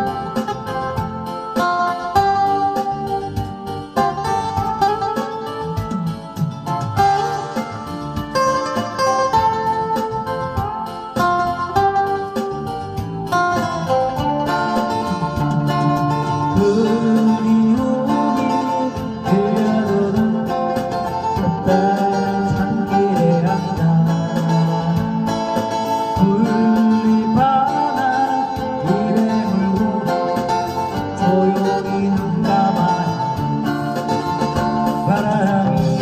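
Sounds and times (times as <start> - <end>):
plucked guitar melody: 0.0 - 36.0.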